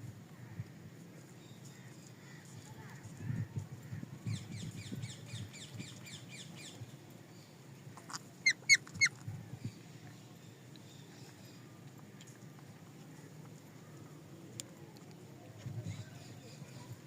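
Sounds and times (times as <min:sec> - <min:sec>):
parrot chirping and squawking: 0:08.4 - 0:09.1.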